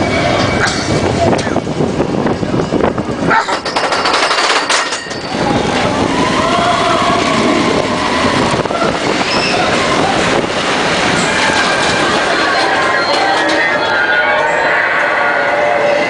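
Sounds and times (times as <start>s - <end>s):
faint voices: 5.2s - 16.0s.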